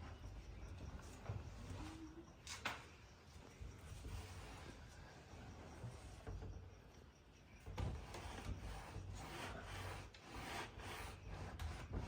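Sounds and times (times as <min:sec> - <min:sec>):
sandpaper rubbing on wood: 0:08.7 - 0:12.0.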